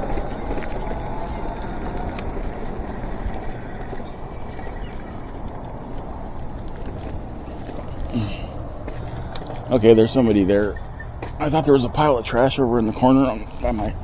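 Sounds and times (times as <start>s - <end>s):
wind rush on microphone: 0.0s - 7.9s
tyre noise: 0.0s - 14.0s.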